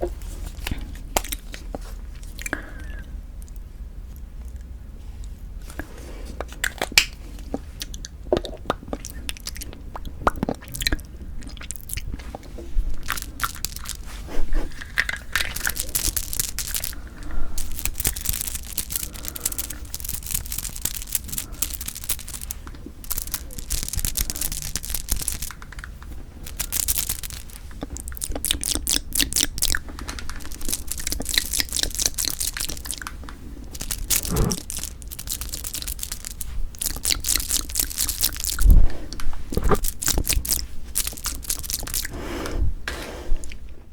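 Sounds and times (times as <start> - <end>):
chewing and crunching: 0.0 - 42.2
mouth clicks: 30.5 - 38.8.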